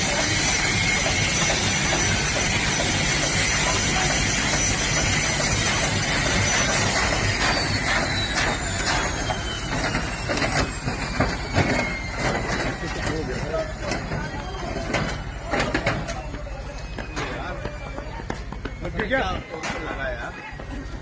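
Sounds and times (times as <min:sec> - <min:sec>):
helicopter turbine whine: 0:00.0 - 0:21.0.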